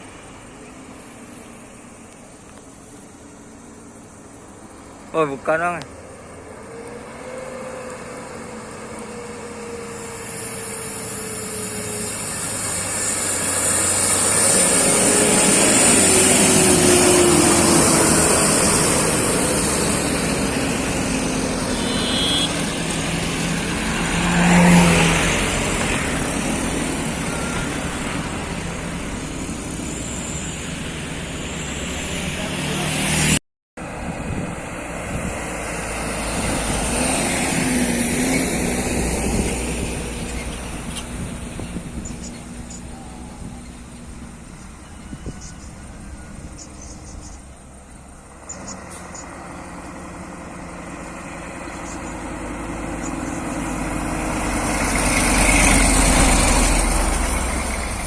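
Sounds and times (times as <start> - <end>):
heavy truck engine labouring: 5.2 - 58.0.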